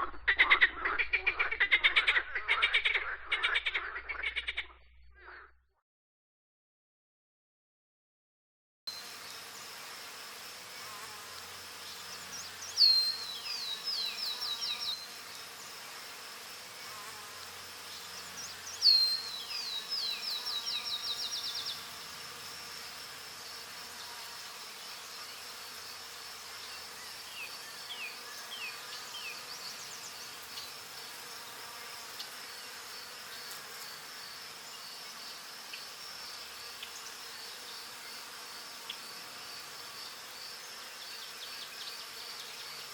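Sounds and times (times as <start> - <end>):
high-pitched insect chorus: 8.9 - 42.9.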